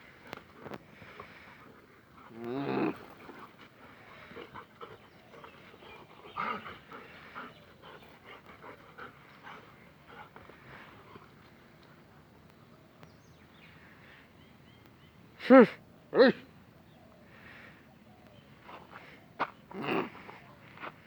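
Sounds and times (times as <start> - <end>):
dog snarling: 2.2 - 3.5, 19.7 - 20.4.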